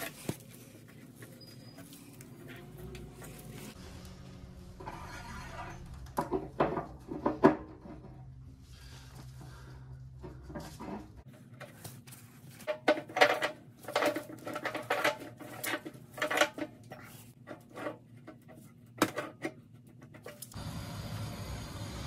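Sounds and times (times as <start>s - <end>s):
hard objects knocking and clattering: 5.9s - 8.4s, 12.5s - 20.4s.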